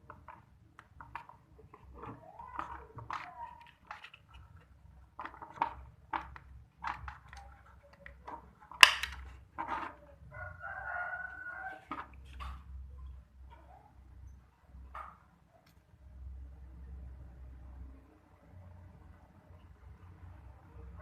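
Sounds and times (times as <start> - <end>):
small parts clicking and knocking: 0.0 - 10.0
rooster crowing: 10.3 - 12.1.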